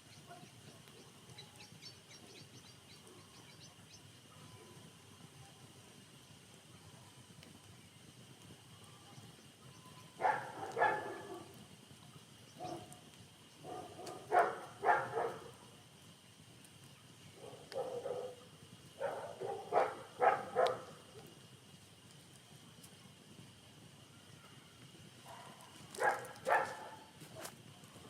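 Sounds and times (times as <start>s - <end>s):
dog barking: 0.3s - 0.5s, 10.2s - 11.6s, 12.6s - 12.9s, 13.6s - 15.6s, 17.4s - 18.4s, 19.0s - 21.3s, 25.3s - 27.1s.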